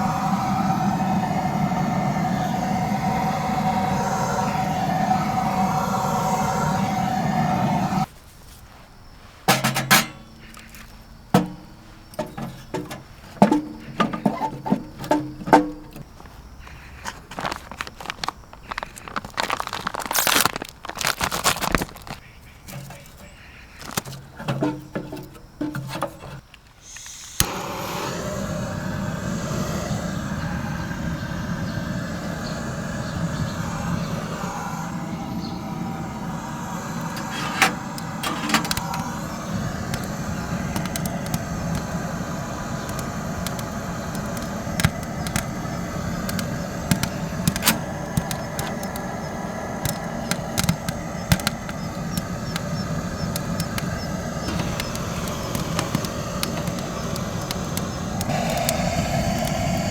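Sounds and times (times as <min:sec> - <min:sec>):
roar of stove fire: 0:00.0 - 0:08.1, 0:23.9 - 0:59.9
wood fire crackling: 0:10.1 - 0:25.0, 0:36.3 - 0:59.9.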